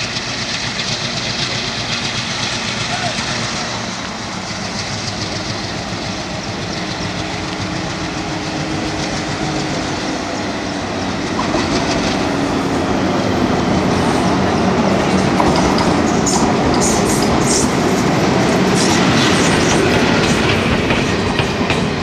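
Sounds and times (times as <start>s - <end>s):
wheels clattering on rails: 0.0s - 10.4s, 11.0s - 12.4s, 14.5s - 22.0s
diesel train rumble: 0.0s - 22.0s.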